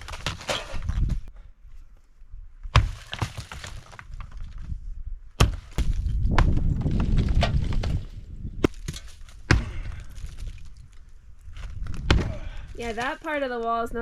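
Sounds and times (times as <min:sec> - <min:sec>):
sledgehammer striking concrete wall: 0:08.7 - 0:10.0, 0:12.0 - 0:12.6.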